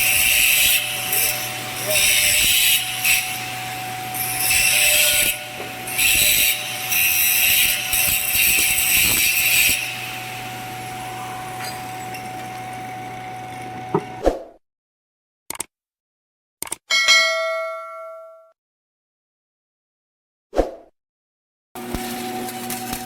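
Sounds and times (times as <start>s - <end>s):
welding arc crackling: 0.0s - 14.2s, 21.8s - 23.0s.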